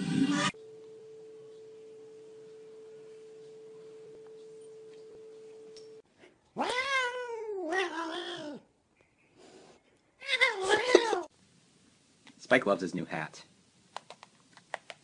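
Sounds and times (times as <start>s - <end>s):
faint steady tone: 0.5s - 6.1s
cat meowing: 6.6s - 8.6s.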